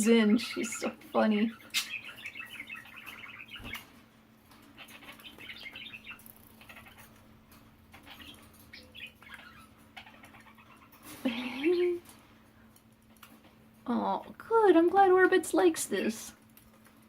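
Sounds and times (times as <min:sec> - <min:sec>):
budgies chirping: 0:00.0 - 0:12.2.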